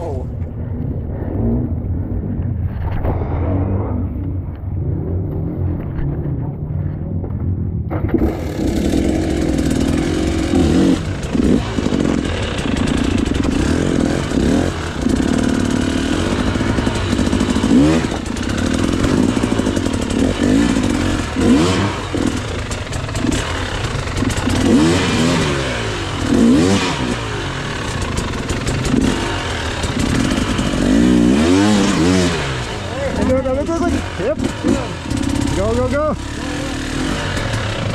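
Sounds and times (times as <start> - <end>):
dirt bike engine revving: 7.9 - 37.9.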